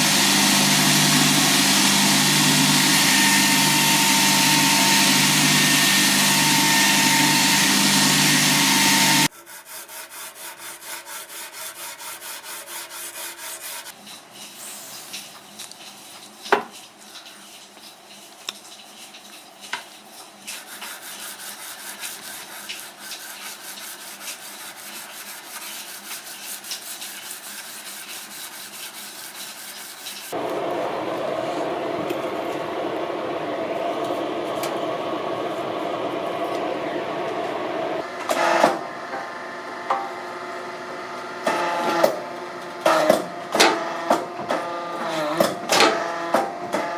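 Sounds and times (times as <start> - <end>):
loud steady noise: 0.0 - 9.3, 30.4 - 38.2.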